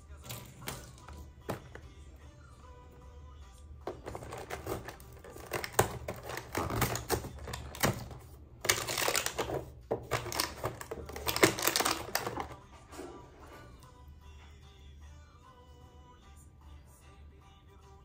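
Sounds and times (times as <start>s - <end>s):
packaging crackling: 3.9s - 12.6s.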